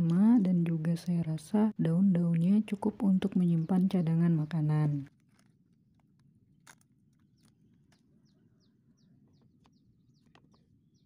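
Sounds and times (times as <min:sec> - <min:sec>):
small bird chirping: 0:02.4 - 0:05.5, 0:07.2 - 0:11.0.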